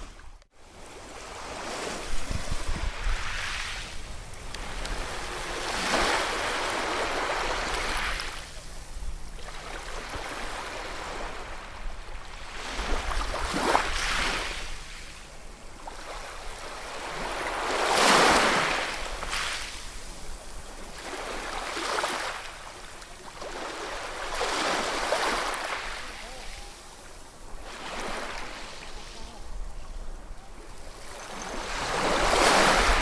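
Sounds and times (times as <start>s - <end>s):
sea waves breaking: 0.0s - 15.2s, 15.8s - 33.0s.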